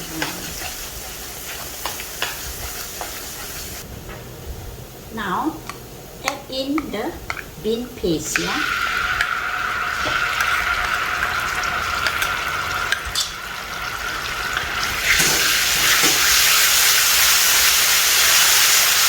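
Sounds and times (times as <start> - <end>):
garlic sizzling in hot oil: 0.0 - 3.8, 8.3 - 19.0.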